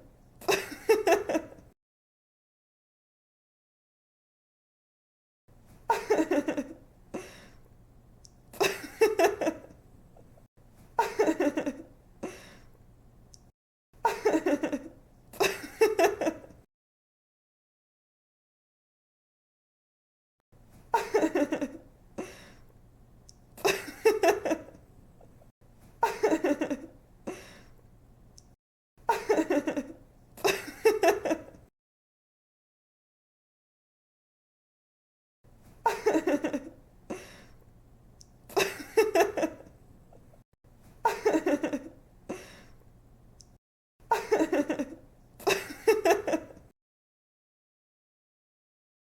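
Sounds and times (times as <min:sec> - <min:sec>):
woman giggling: 0:00.4 - 0:01.6, 0:05.9 - 0:07.4, 0:08.6 - 0:09.7, 0:11.0 - 0:12.4, 0:14.0 - 0:16.6, 0:21.0 - 0:21.8, 0:23.6 - 0:24.8, 0:26.0 - 0:27.5, 0:29.1 - 0:31.6, 0:35.9 - 0:37.2, 0:38.5 - 0:39.7, 0:41.1 - 0:42.5, 0:44.1 - 0:46.6.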